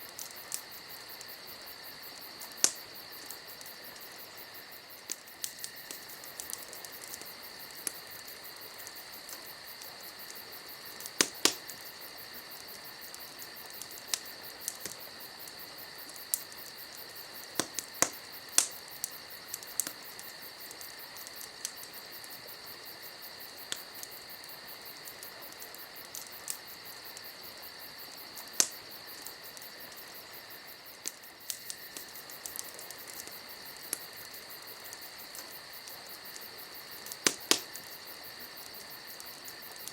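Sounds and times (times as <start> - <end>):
campfire crackling and popping: 0.0 - 39.9
crickets chirring: 0.0 - 39.9.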